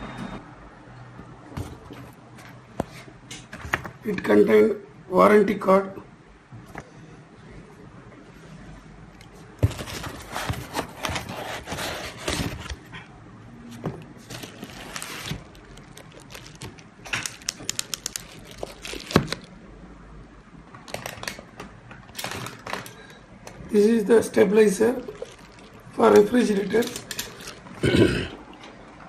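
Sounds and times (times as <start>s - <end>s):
packaging crinkling and rustling: 9.6s - 12.9s, 13.8s - 19.5s, 20.8s - 23.2s, 24.9s - 27.8s.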